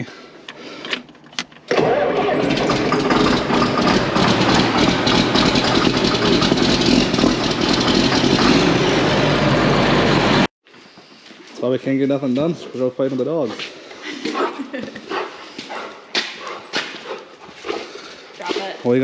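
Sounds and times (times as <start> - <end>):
tractor engine running: 1.1 - 10.5.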